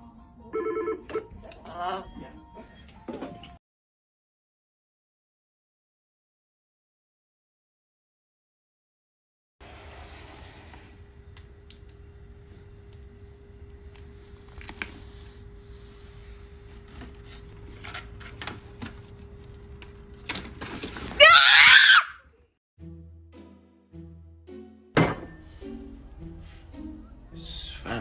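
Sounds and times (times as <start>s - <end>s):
shrill wavering scream: 21.2s - 22.2s.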